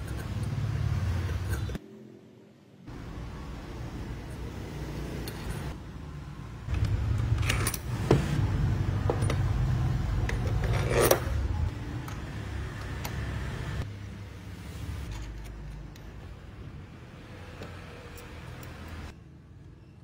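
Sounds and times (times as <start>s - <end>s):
metal parts clinking: 6.7s - 8.0s.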